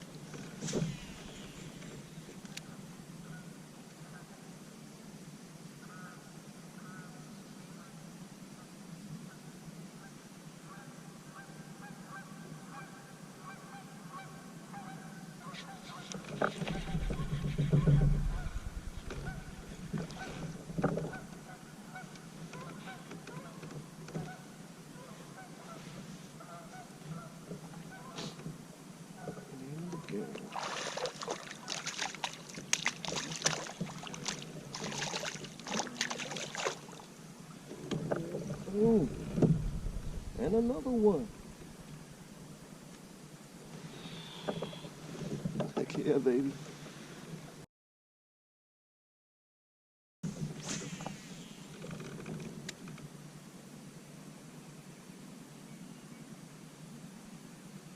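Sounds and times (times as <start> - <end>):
geese honking: 11.4 - 23.6
steady low hum: 16.6 - 22.8, 35.6 - 43.5
water splashing against kayak: 30.3 - 42.0.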